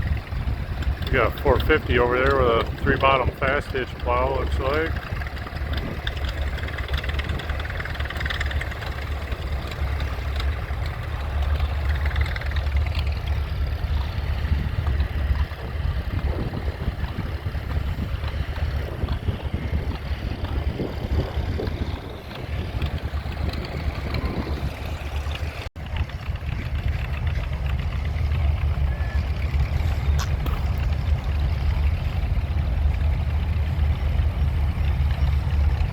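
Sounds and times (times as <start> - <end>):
tractor engine rumbling: 0.0 - 35.9.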